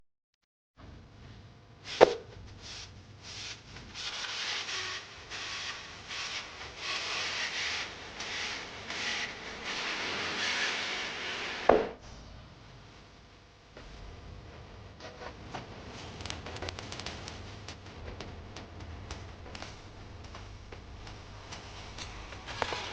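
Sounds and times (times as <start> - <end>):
spatula scraping a wok: 3.3 - 11.7, 21.2 - 22.9.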